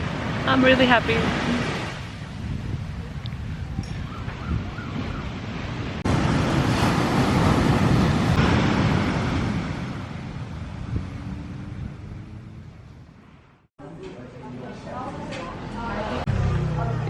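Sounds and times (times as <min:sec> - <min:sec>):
wind buffeting microphone: 0:00.0 - 0:13.4
sea surf rushing: 0:00.0 - 0:13.6.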